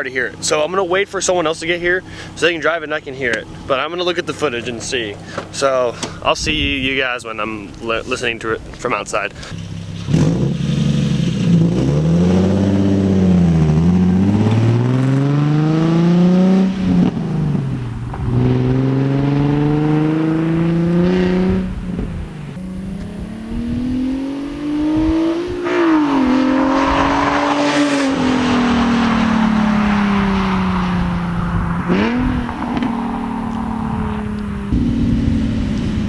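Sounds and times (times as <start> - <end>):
raspy car engine accelerating: 9.6 - 36.0.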